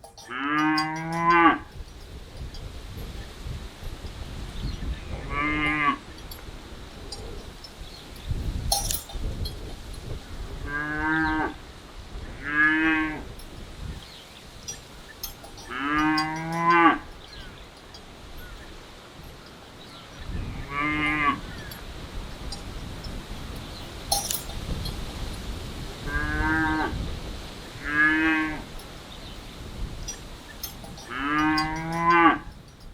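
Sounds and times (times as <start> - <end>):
cattle mooing: 0.2 - 1.7, 5.1 - 6.1, 15.5 - 17.1, 20.5 - 21.5, 26.0 - 27.0, 27.8 - 28.8, 31.0 - 32.6.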